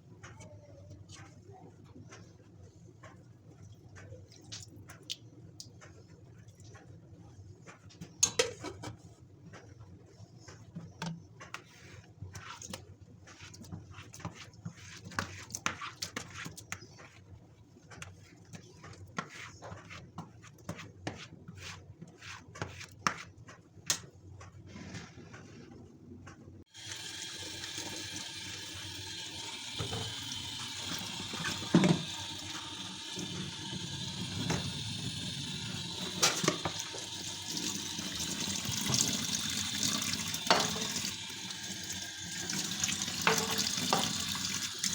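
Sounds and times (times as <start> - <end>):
tap water running: 26.7 - 44.9.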